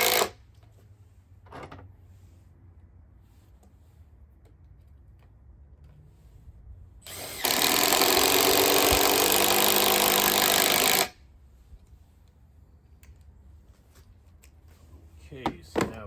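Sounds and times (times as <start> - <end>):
impact driver hammering screw into wood: 7.1 - 11.2.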